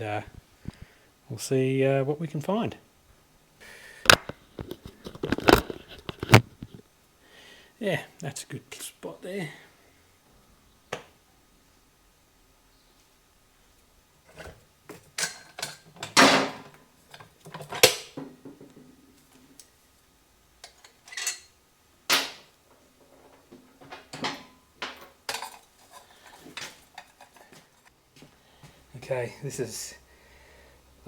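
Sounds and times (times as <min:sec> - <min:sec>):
metal tools clanking: 0:14.3 - 0:17.9, 0:20.6 - 0:27.9
loud metal clunks: 0:16.2 - 0:16.7.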